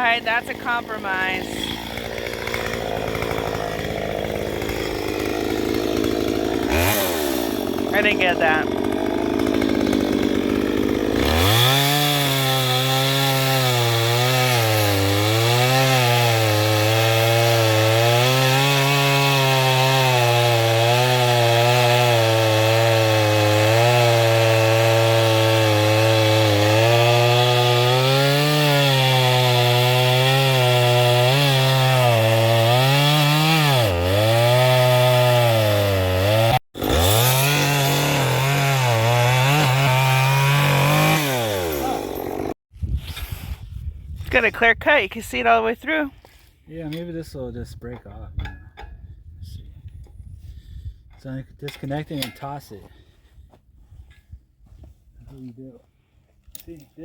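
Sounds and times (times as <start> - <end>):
chainsaw cutting log: 0.0 - 43.4.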